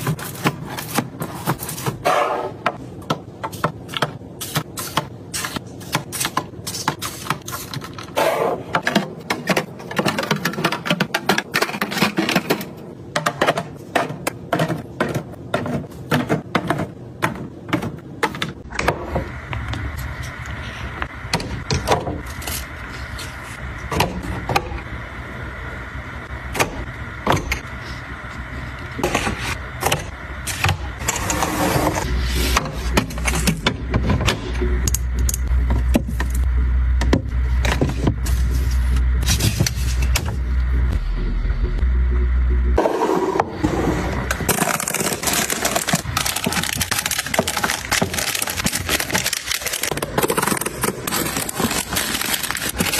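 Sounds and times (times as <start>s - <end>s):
steady rushing hum: 12.5s - 52.9s.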